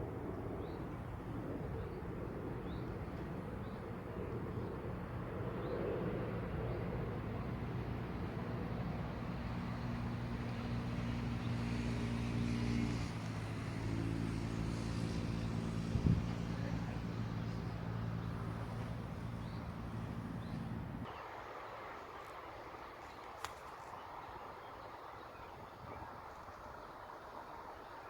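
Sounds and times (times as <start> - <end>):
motor engine humming: 7.8 - 21.1.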